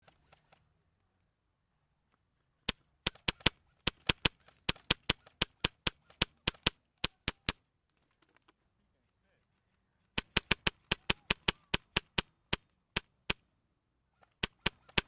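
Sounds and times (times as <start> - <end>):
airsoft gun shots: 2.7 - 7.6, 10.2 - 13.4, 14.4 - 15.0.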